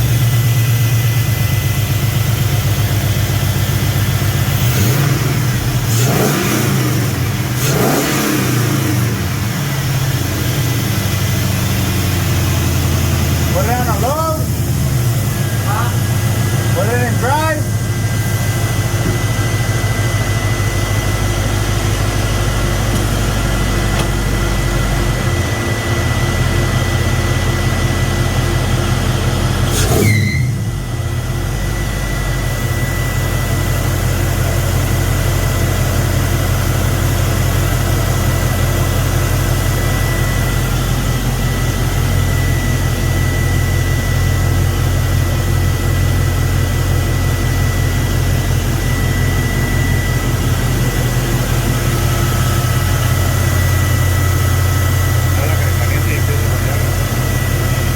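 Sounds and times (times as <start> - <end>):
v eight engine idling: 0.0 - 57.9
thin steady whine: 8.8 - 57.9.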